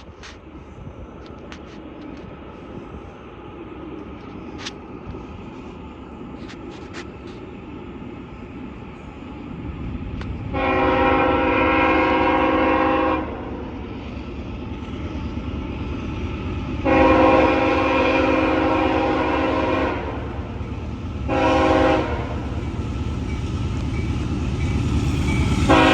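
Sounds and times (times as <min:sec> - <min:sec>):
train rumble: 0:00.0 - 0:25.9
locomotive air horn blasts: 0:10.5 - 0:13.6, 0:16.8 - 0:20.6, 0:21.2 - 0:22.6, 0:25.6 - 0:25.9.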